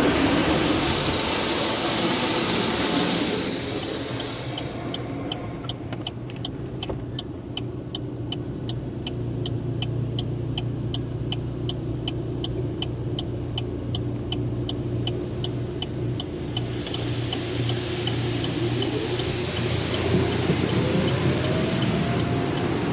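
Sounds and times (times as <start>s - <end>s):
car wash hiss: 0.0s - 6.4s, 14.9s - 22.9s
car wash low hum: 0.0s - 22.9s
high ticking: 11.3s - 22.9s.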